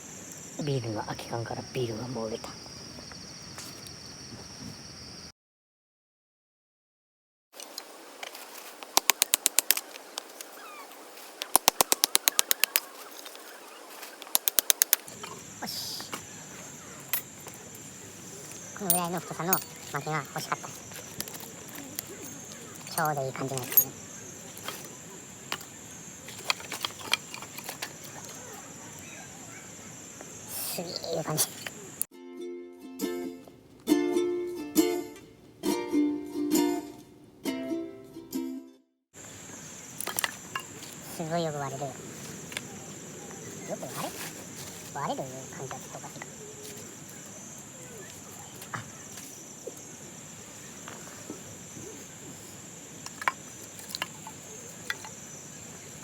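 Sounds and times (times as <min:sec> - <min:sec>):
crickets chirring: 0:00.0 - 0:05.3, 0:07.6 - 0:32.1, 0:39.2 - 0:56.0
firewood knocking and clicking: 0:14.2 - 0:16.3, 0:18.8 - 0:28.4, 0:53.0 - 0:55.2.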